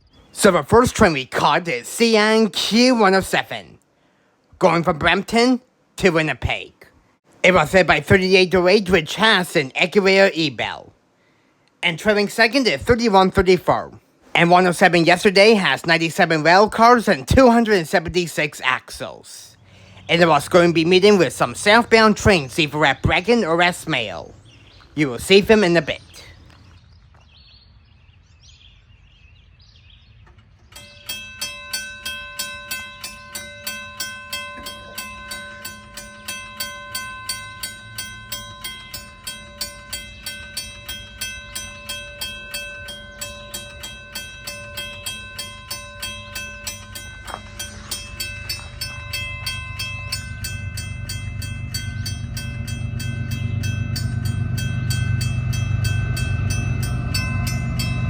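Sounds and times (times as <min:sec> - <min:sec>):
freight train rumble: 0:11.8 - 0:26.5, 0:30.2 - 0:58.0
level-crossing bell ringing: 0:30.7 - 0:58.0.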